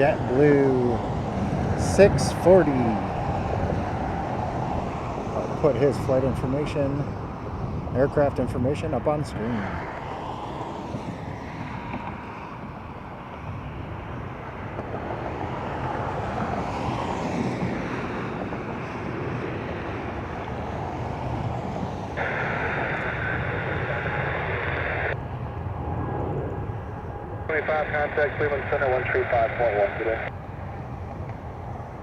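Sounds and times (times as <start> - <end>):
jet engines rushing: 0.0 - 32.0
wind on microphone: 0.1 - 5.6, 6.3 - 29.2
radio hiss: 22.2 - 25.2, 27.5 - 30.3.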